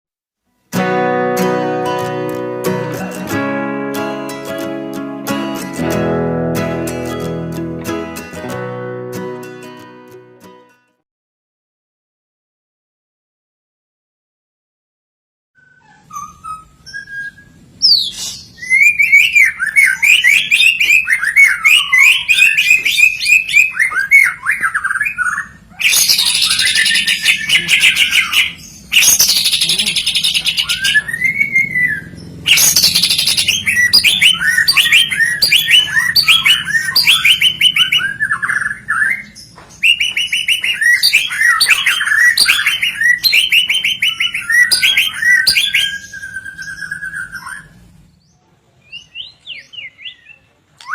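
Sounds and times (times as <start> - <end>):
songbird singing whistled phrases: 15.6 - 47.8, 48.9 - 50.9
harsh rasping bird calls: 17.8 - 47.8.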